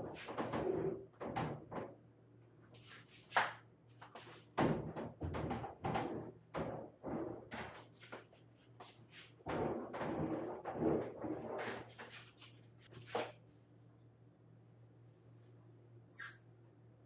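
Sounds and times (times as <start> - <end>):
faint steady hum: 12.4 - 17.0.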